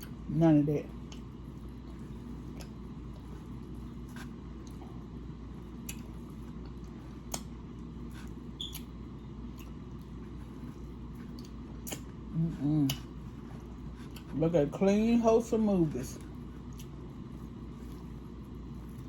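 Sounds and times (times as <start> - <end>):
steady low hum: 0.0 - 19.0
faint clicks and smacks: 1.0 - 5.1, 5.8 - 12.2, 12.8 - 14.4, 16.1 - 19.0
person chewing: 1.0 - 14.4, 16.2 - 19.0.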